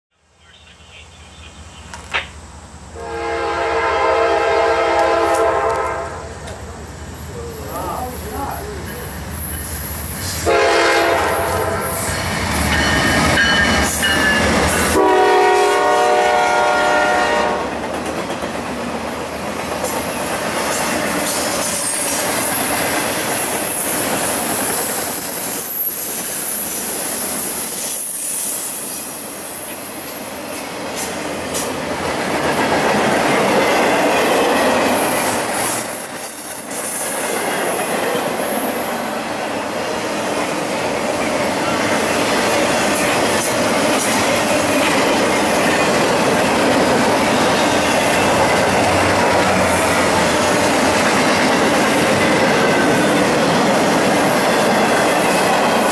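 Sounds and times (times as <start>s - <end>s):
wheel noise and rail clatter: 0.4s - 2.9s, 4.4s - 55.9s
train horn blasts: 3.0s - 6.4s, 10.4s - 12.1s, 13.0s - 17.7s.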